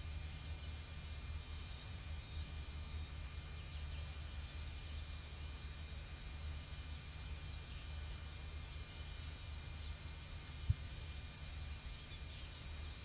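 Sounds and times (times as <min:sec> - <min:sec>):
steady high-pitched hum: 0:00.0 - 0:13.0
wind rumble on microphone: 0:08.2 - 0:13.0
faint bird chirps: 0:08.6 - 0:13.0.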